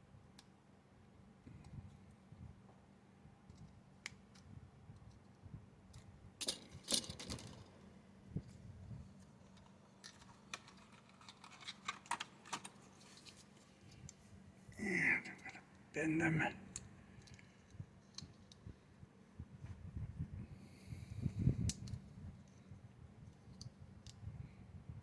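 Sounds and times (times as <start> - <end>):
clicks of plastic model parts: 3.5 - 7.7, 9.5 - 13.4, 16.8 - 18.6.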